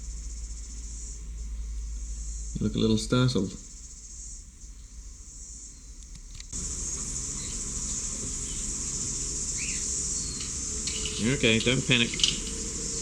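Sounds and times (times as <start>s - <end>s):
high-pitched insect drone: 6.6s - 13.0s.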